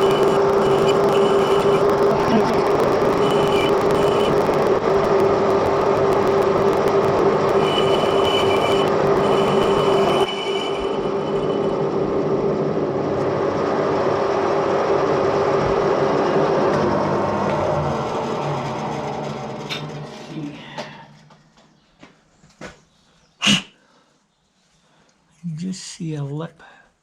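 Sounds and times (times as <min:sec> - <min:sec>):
high-pitched squeal: 0:00.0 - 0:21.3
lathe running: 0:00.0 - 0:21.4.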